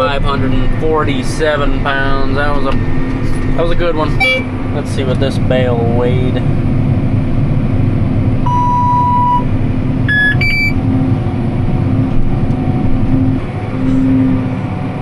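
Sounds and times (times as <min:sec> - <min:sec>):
tractor engine running: 0:00.0 - 0:15.0
electronic beeps: 0:04.1 - 0:04.5, 0:10.1 - 0:10.8.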